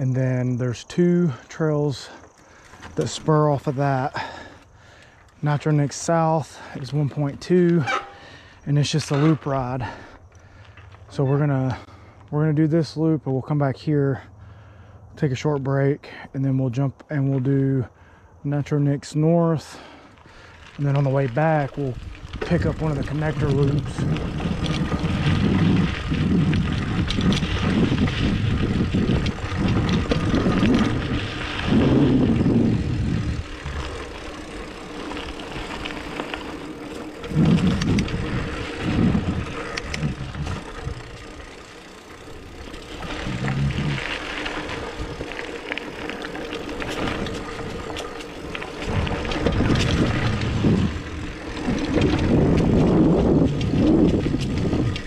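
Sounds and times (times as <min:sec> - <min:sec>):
bike clicks and rattles: 0:00.9 - 0:13.5, 0:19.8 - 0:55.0
tyres rumbling on dirt: 0:20.3 - 0:55.0
wind on microphone: 0:21.9 - 0:34.2, 0:37.2 - 0:41.5, 0:46.8 - 0:55.0.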